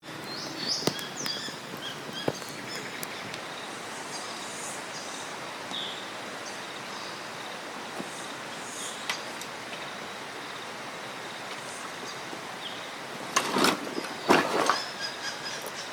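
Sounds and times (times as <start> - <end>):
rain hiss: 0.0 - 15.9
sharp ticks and pops: 0.1 - 3.5
bird chirps: 0.1 - 7.2.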